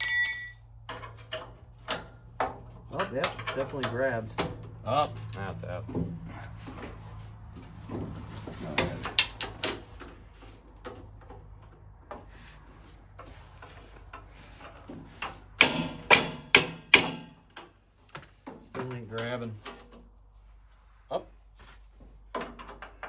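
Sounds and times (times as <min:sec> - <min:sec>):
metal tools clinking on bracket: 0:00.0 - 0:01.2
loud sharp knocks: 0:15.6 - 0:17.4.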